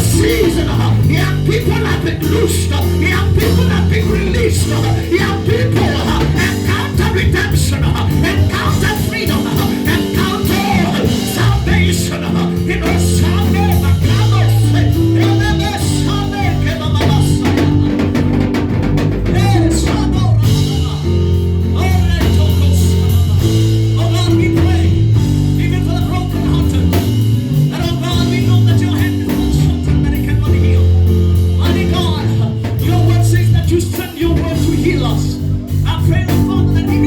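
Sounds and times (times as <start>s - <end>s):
people singing or praying: 0.0s - 17.8s
worship band playing: 0.0s - 37.0s.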